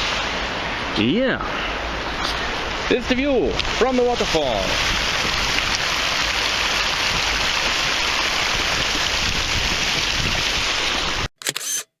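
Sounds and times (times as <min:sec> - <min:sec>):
waterfall rushing: 0:00.0 - 0:11.3.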